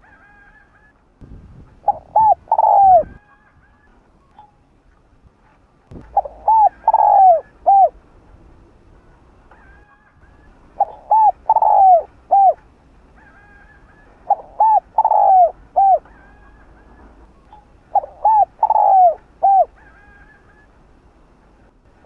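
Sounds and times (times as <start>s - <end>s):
dove cooing: 1.8s - 3.9s, 6.0s - 8.0s, 9.6s - 20.8s.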